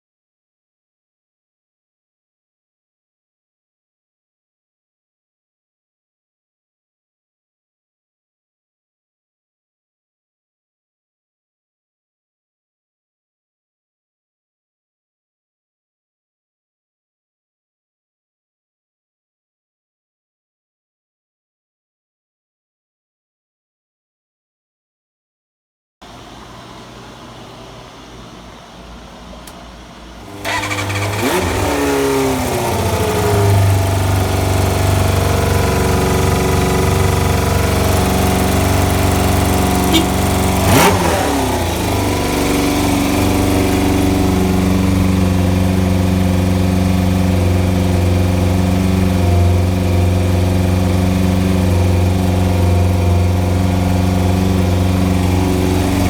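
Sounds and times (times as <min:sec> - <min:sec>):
motorcycle engine revving and idling: 0:30.2 - 0:56.0.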